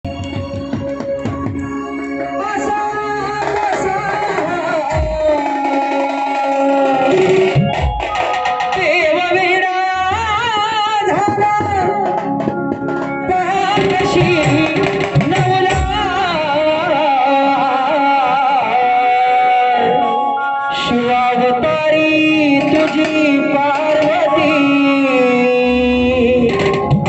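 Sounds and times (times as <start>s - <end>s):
hand drum beats: 0.0s - 17.1s, 22.4s - 25.0s, 26.1s - 27.0s
instrumental accompaniment: 0.0s - 27.0s
person singing ornamented notes: 13.2s - 27.0s.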